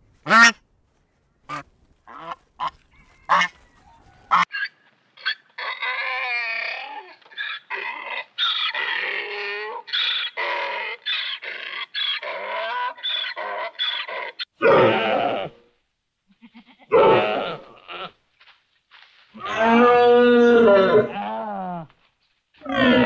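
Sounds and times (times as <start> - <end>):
donkey braying: 4.3 - 15.6, 19.4 - 21.7, 22.6 - 23.0.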